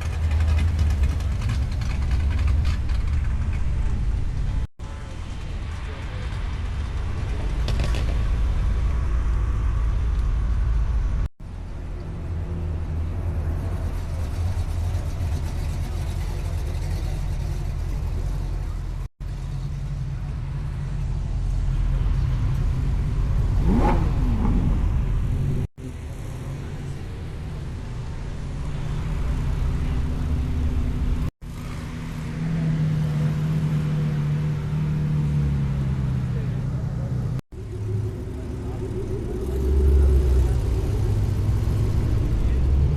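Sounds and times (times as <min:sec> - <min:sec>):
vehicle engines rumbling: 0:00.0 - 0:42.9
engine revving: 0:21.6 - 0:25.7, 0:28.6 - 0:42.9.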